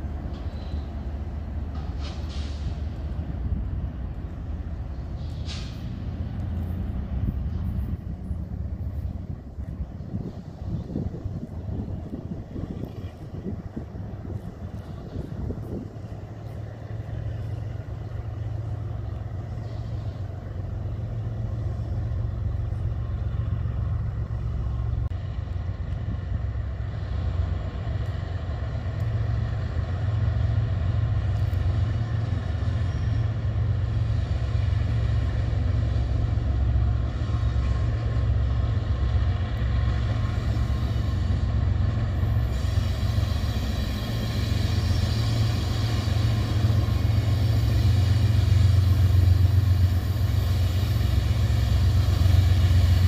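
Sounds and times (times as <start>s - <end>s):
container train crossing overhead: 0.0s - 53.0s
freight train rumble: 0.0s - 53.0s.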